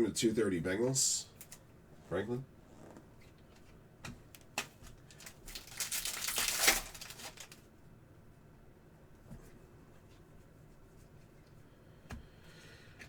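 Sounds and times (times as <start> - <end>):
foil wrapper crinkling and tearing: 4.6 - 7.7.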